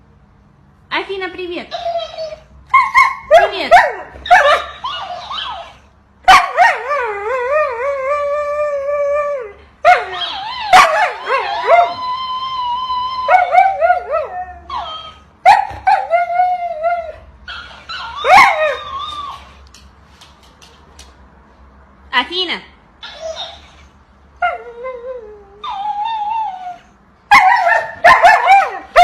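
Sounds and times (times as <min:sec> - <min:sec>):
dog howling: 0:01.9 - 0:17.2.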